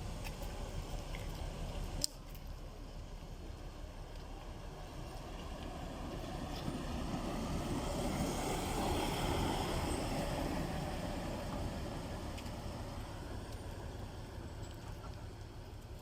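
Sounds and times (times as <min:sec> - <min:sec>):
vehicle passing by: 0:05.0 - 0:14.2.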